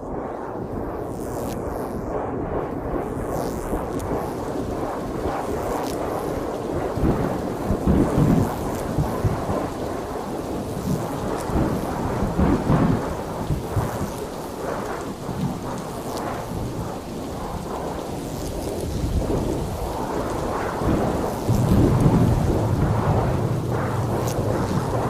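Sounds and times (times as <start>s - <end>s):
heavy rain: 3.2s - 25.0s
low rumbles: 21.4s - 25.0s.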